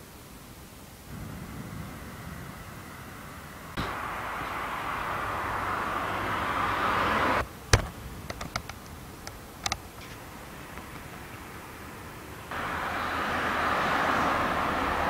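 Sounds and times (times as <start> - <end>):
heavy rain hissing: 0.0 - 15.0
sharp knock: 7.7 - 8.5.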